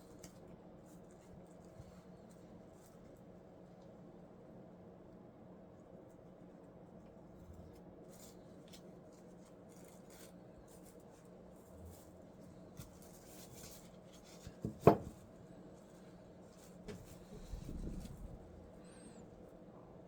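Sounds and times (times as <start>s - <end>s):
sharp knock on workbench: 14.6s - 15.1s.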